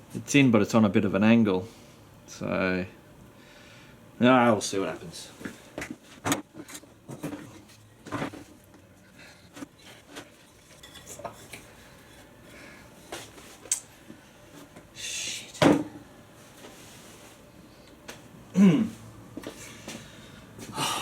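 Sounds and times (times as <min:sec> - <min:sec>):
scrape: 0:16.5 - 0:17.4.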